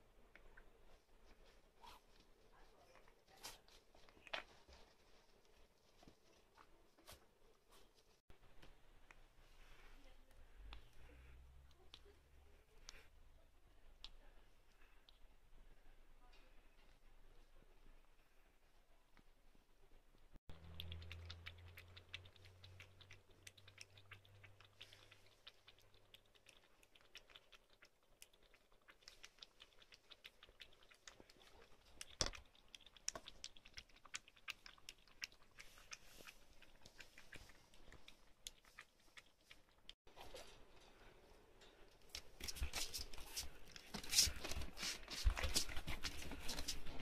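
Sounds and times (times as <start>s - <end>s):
puppy crunching food: 20.5s - 40.0s.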